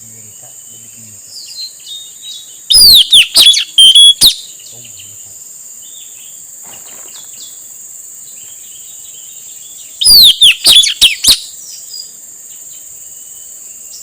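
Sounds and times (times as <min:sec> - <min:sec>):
high insect drone: 0:00.0 - 0:14.0
parrot shrill falling calls: 0:02.7 - 0:04.4, 0:10.0 - 0:11.5.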